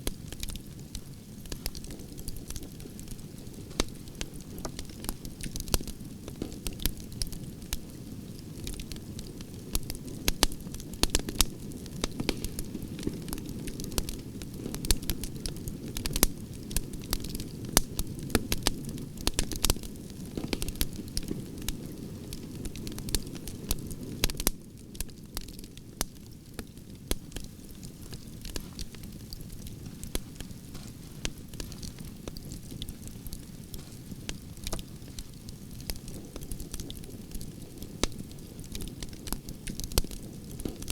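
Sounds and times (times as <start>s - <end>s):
campfire crackling and popping: 0.0s - 40.9s
flames rushing: 27.3s - 38.2s.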